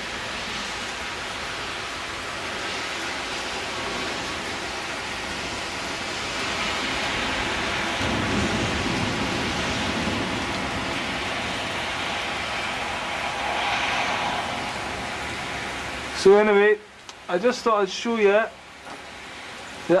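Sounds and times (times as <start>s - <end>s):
heavy rain splashing: 0.0s - 20.0s
thunder rumbling: 3.6s - 17.0s.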